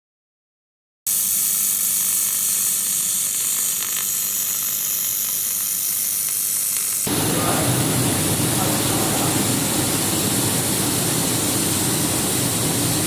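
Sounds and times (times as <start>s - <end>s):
laser welder high hiss: 1.1s - 13.0s.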